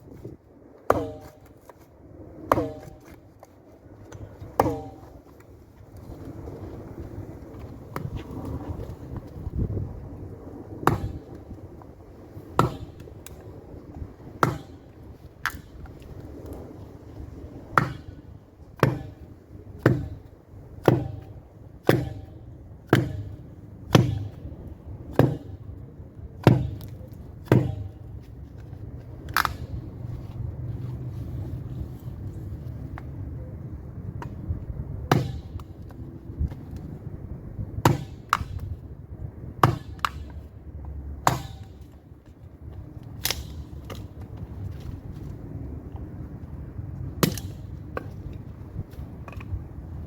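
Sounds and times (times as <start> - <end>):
axe chopping wood: 0.8 - 1.8, 2.5 - 3.5, 4.1 - 5.4, 7.9 - 8.2, 10.8 - 11.4, 12.5 - 13.4, 14.3 - 15.9, 17.7 - 18.2, 18.8 - 24.5, 25.1 - 25.8, 26.4 - 28.0, 29.3 - 29.8, 35.0 - 36.6, 37.8 - 38.8, 39.6 - 40.4, 41.2 - 41.9, 43.2 - 44.2, 47.2 - 48.2.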